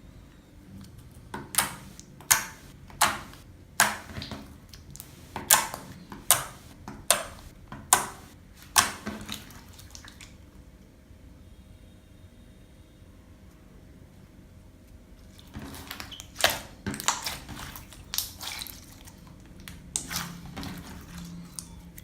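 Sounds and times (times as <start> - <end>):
slime squelching: 0.8 - 10.5, 15.2 - 22.0.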